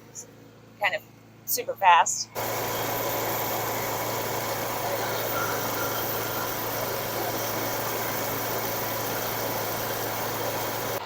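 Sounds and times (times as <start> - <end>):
drilling rig engine humming: 2.3 - 11.0.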